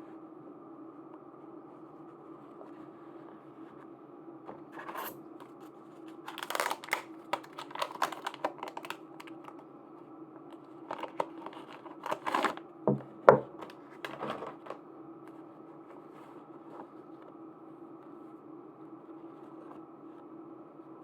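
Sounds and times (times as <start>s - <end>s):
plastic packaging crinkling and tearing: 4.8s - 9.6s, 10.5s - 12.6s, 13.5s - 14.8s.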